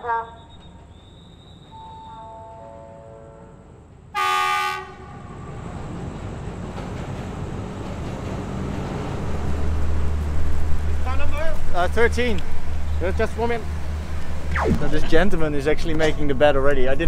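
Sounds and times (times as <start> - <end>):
locomotive and carriages rumbling: 0.0 - 17.0
train horn blast: 1.7 - 5.6
descending run of tones: 11.1 - 16.5.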